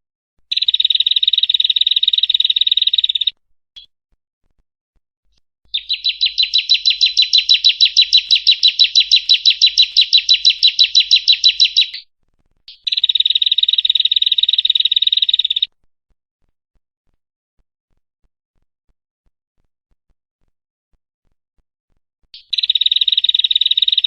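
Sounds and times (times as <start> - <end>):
bird singing rapid trill: 0.5 - 3.4, 5.7 - 12.1, 12.7 - 15.7, 22.4 - 24.0.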